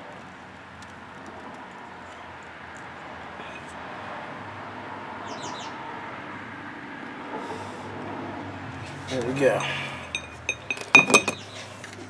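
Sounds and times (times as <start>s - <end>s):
bird chirping: 5.2s - 5.7s.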